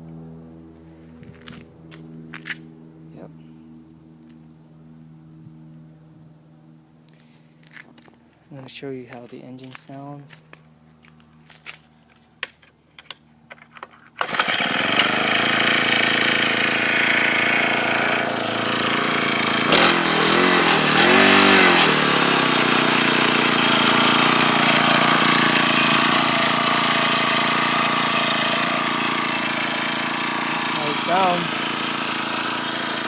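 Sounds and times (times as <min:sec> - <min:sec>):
small engine starting and revving: 0:14.1 - 0:33.0.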